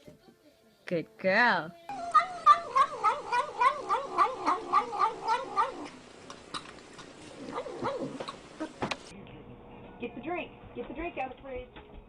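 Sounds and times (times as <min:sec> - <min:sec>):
animal yowling: 0:01.9 - 0:06.0, 0:07.3 - 0:08.8.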